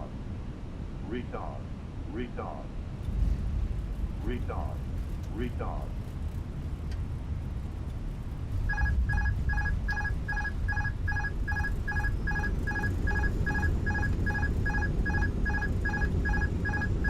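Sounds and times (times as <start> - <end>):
aircraft rolling rumble: 2.7 - 17.0
cockpit warning beeps: 8.7 - 17.0.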